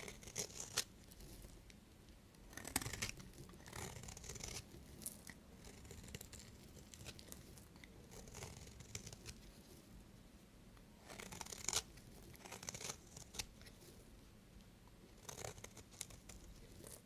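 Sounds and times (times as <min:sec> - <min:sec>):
knife scraping through soap: 0:00.0 - 0:01.5, 0:02.5 - 0:09.4, 0:11.0 - 0:13.8, 0:15.2 - 0:17.0.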